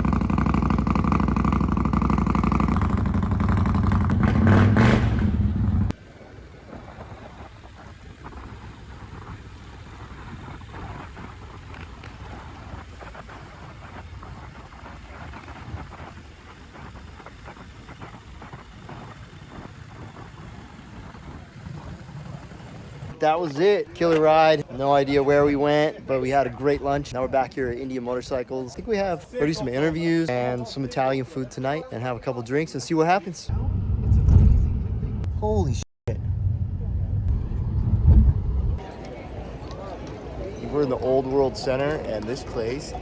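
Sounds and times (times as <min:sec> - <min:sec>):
motorcycle engine revving: 0:00.0 - 0:23.2
steady low rumble: 0:00.0 - 0:23.2, 0:33.5 - 0:38.8.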